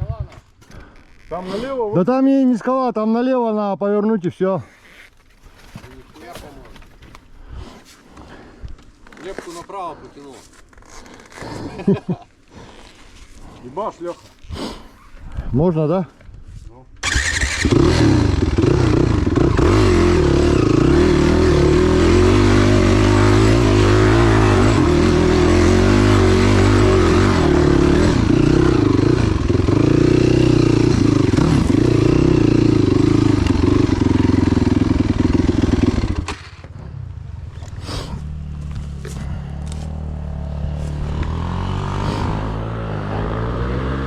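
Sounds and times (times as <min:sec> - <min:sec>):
dirt bike engine revving: 0:17.0 - 0:44.0.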